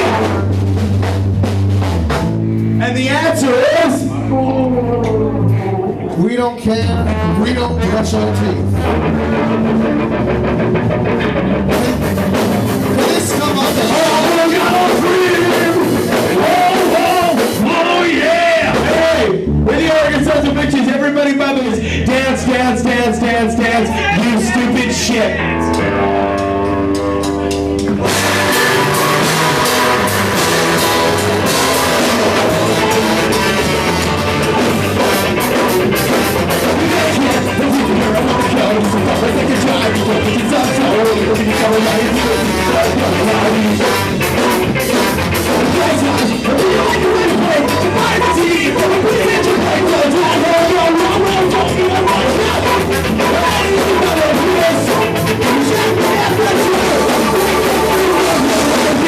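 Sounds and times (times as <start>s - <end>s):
horn lines: 0.0s - 4.3s, 6.8s - 11.0s, 25.4s - 59.0s
bass guitar: 0.0s - 59.0s
distorted guitar: 0.0s - 59.0s
drum kit: 0.0s - 59.0s
live ska-punk band playing: 0.0s - 59.0s
person singing: 2.8s - 9.8s, 12.8s - 20.8s, 21.5s - 59.0s.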